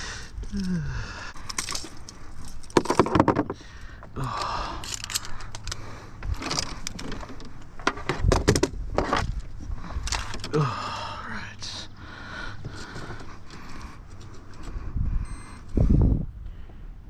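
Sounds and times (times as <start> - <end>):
low steady rumble: 0.0 - 17.0
fishing gear clattering: 0.3 - 11.0.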